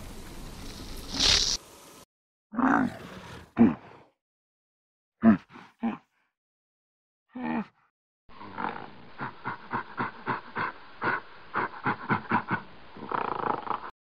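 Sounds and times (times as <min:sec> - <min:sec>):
gorilla grunting: 0:02.6 - 0:04.1, 0:05.2 - 0:06.2, 0:07.3 - 0:07.8, 0:08.4 - 0:13.9
camel grunt: 0:02.6 - 0:04.2.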